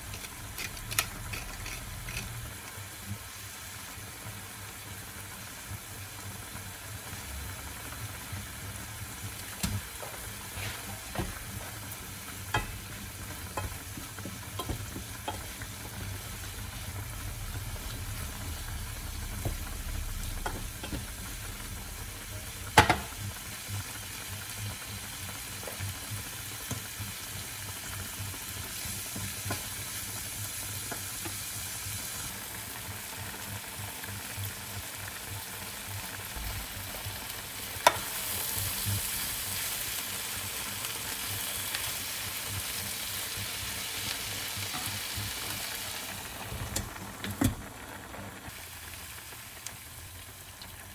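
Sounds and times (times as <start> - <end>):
utensil scraping a pan: 0.0 - 2.6, 10.4 - 11.6
food sizzling in a pan: 0.0 - 50.9.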